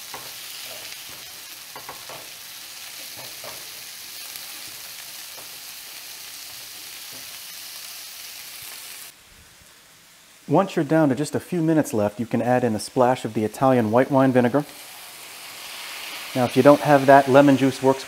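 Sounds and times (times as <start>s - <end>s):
vegetables sizzling in oil: 0.0s - 18.0s
spatula scraping and tapping pan: 0.1s - 2.4s, 3.0s - 3.7s.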